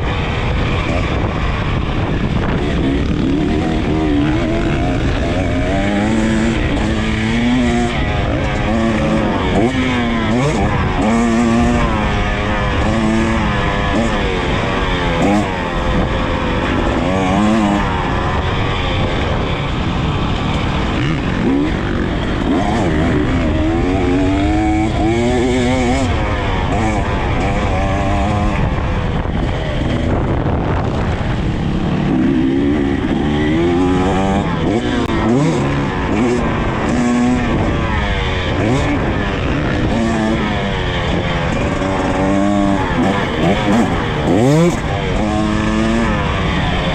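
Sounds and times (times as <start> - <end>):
dirt bike engine revving: 0.0 - 46.9
wind noise on microphone: 0.0 - 46.9.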